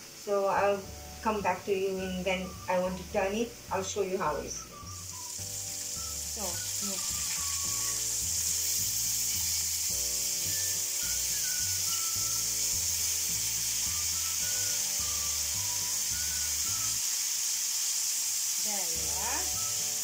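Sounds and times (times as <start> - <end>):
chicken sizzling in oil: 0.0 - 20.0
soft background music: 0.0 - 20.0
fork turning food in pan: 5.0 - 13.9.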